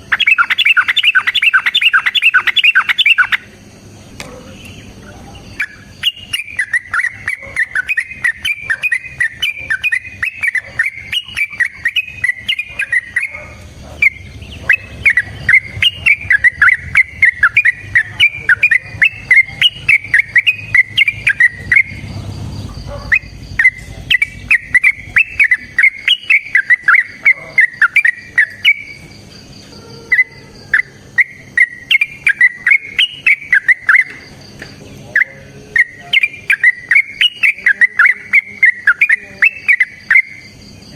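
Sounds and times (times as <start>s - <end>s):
bird song bubbling whistles: 0.0s - 3.5s, 5.6s - 13.4s, 14.0s - 22.0s, 23.2s - 28.9s.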